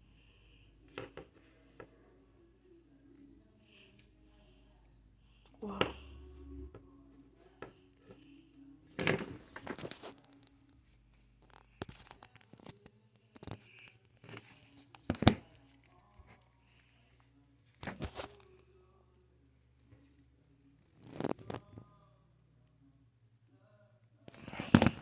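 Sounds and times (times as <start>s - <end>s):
rustling and crinkling handling noise: 6.8s - 16.6s.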